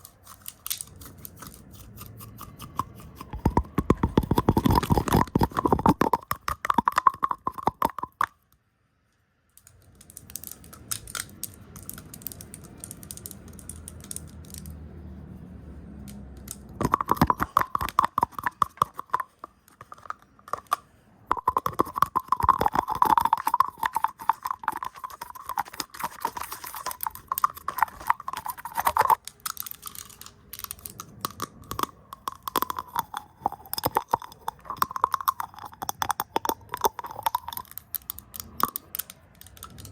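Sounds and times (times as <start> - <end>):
scratchy bristle brushing: 0.0 - 7.8, 16.8 - 29.2.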